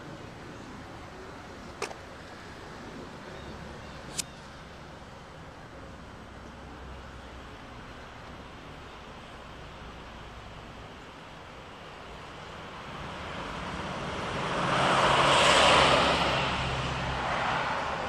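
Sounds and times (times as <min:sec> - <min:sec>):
low engine hum: 0:00.0 - 0:18.0
motor vehicle passing by: 0:12.9 - 0:18.0.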